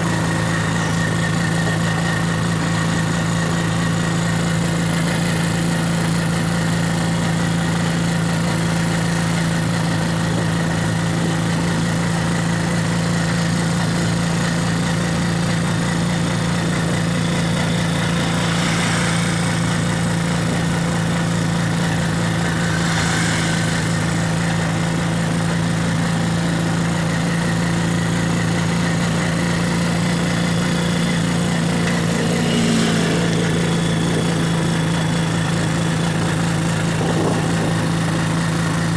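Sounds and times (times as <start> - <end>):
vehicle engine humming: 0.0 - 38.9
passing traffic hiss: 17.4 - 25.9.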